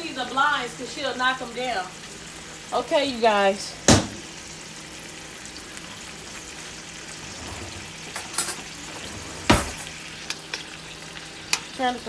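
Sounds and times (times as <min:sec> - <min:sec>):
chicken sizzling in a wok: 0:00.0 - 0:12.0
loud sharp knock: 0:03.9 - 0:04.2.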